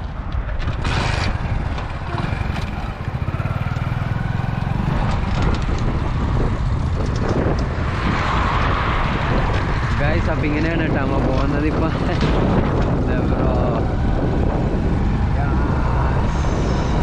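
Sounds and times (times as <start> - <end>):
vehicle engine running: 0.0 - 17.0
wind noise on microphone: 0.0 - 17.0.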